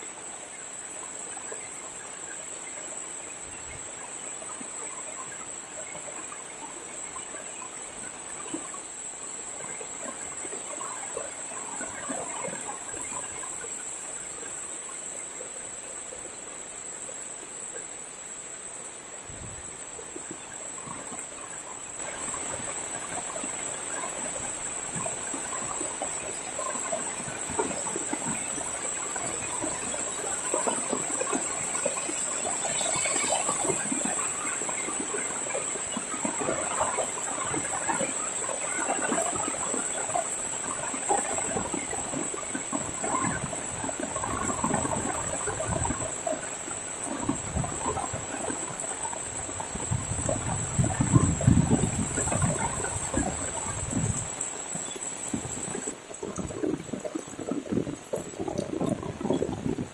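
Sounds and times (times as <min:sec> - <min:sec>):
high-pitched insect trill: 0:19.4 - 0:57.1.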